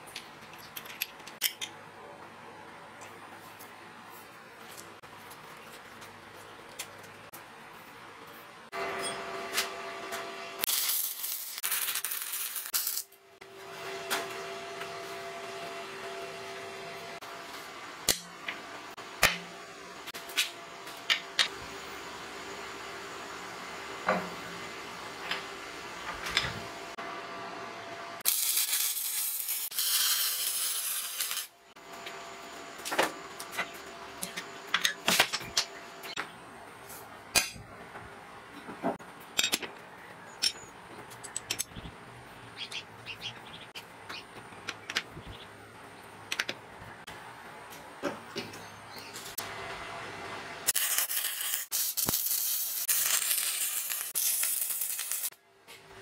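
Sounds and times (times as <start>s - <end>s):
metal tools clinking: 40.4s - 41.7s.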